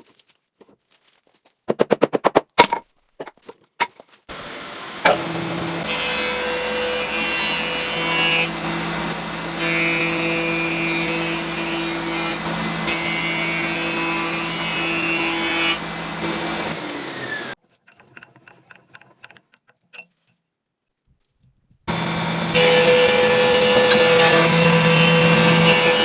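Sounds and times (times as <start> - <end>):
woodworking machine humming: 4.3 - 17.6, 21.9 - 26.0.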